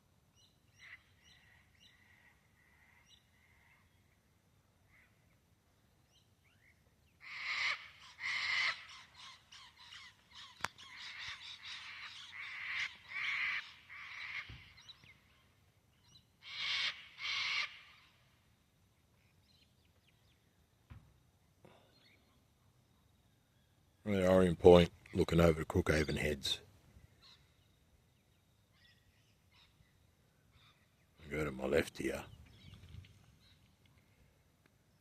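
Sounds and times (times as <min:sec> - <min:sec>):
harsh raspy bird calls: 0:00.8 - 0:04.0, 0:07.2 - 0:15.6, 0:16.4 - 0:18.3, 0:24.1 - 0:27.7, 0:28.7 - 0:33.6.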